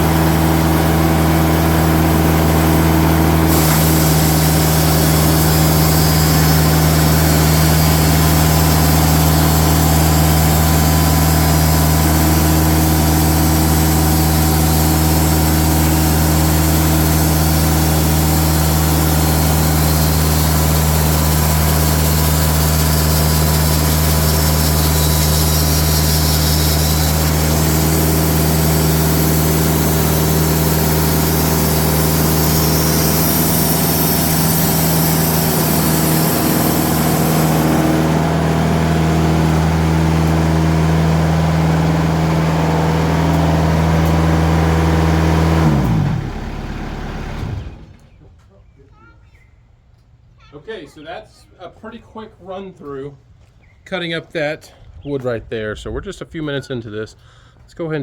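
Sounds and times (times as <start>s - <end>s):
diesel engine running: 0.0s - 48.2s.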